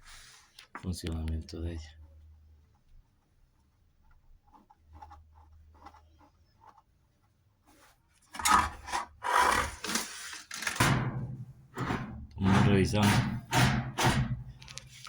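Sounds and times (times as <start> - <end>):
washing machine grinding: 8.4 - 14.5.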